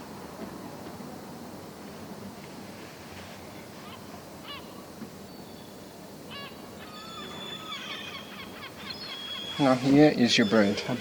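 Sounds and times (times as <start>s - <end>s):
gulls calling: 3.8s - 11.0s.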